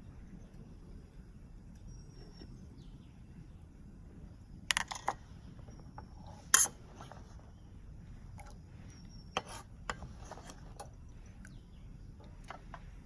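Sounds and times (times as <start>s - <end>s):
steady low hiss: 0.0s - 13.0s
objects clicking and knocking: 4.7s - 6.7s.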